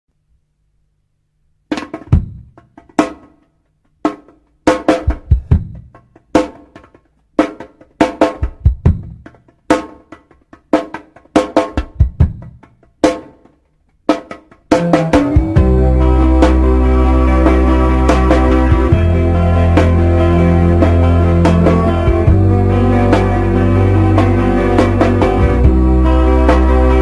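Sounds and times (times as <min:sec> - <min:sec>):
snare and bass drum hits: 0:01.7 - 0:03.3.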